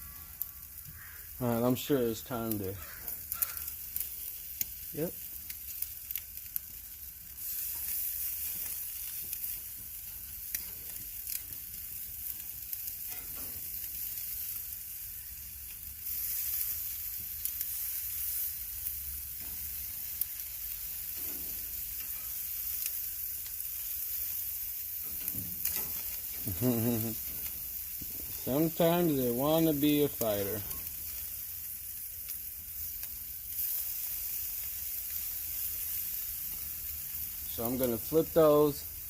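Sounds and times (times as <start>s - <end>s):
chicken sizzling on grill: 0.0s - 39.0s
small pops and crackles: 2.5s - 6.8s.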